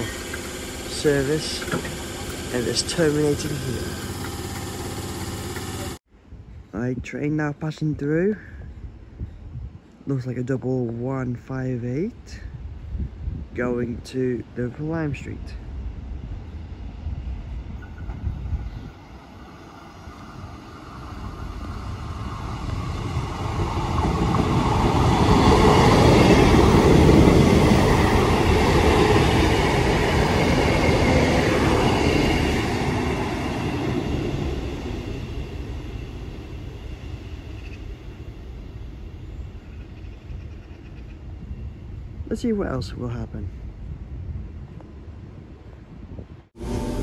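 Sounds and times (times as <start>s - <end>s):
diesel train engine passing: 0.0s - 6.0s, 14.7s - 42.2s, 46.5s - 47.0s
train wheels on rails: 0.0s - 6.0s, 17.5s - 41.1s.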